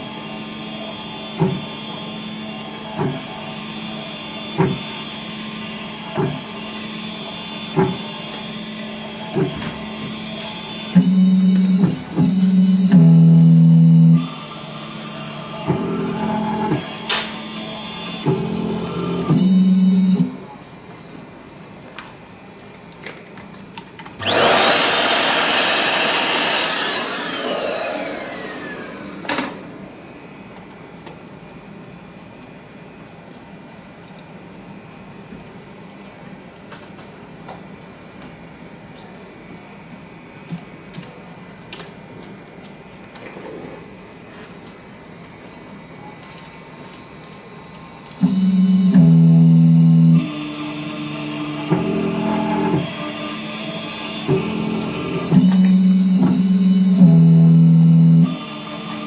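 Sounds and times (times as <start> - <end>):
grinding spindle whining: 24.2 - 29.3, 54.4 - 58.7.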